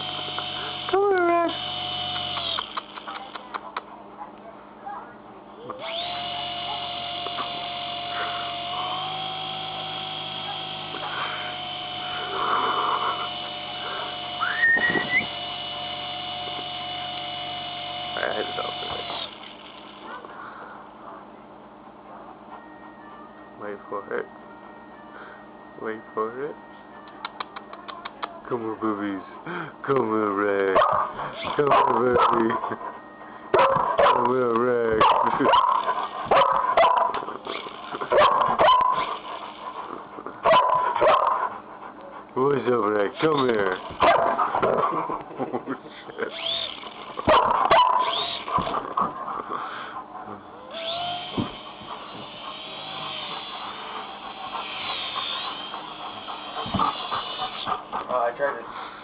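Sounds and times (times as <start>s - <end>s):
electrical hum: 0.0s - 59.0s
person whistling: 14.4s - 15.2s
dog barking: 30.8s - 32.5s, 33.6s - 34.3s, 35.0s - 37.3s, 38.1s - 39.0s, 40.4s - 41.5s, 44.0s - 44.8s, 47.3s - 48.7s.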